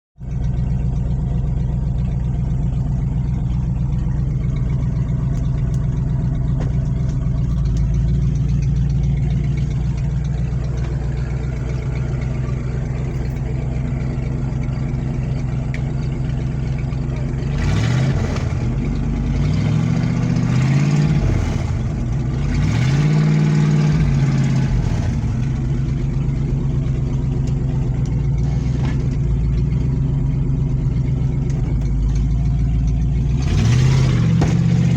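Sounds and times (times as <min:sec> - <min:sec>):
truck engine idling and revving: 0:00.2 - 0:34.9.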